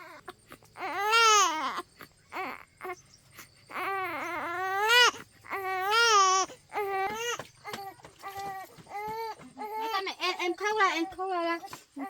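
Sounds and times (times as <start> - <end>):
infant crying: 0.0 - 10.2.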